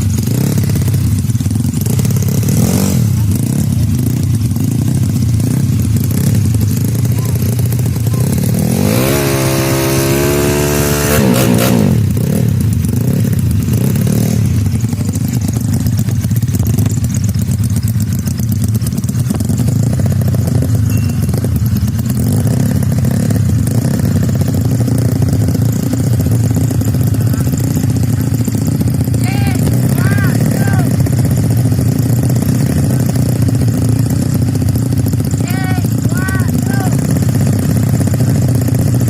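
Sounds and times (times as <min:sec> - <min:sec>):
scooter engine running rough: 0:00.0 - 0:39.0.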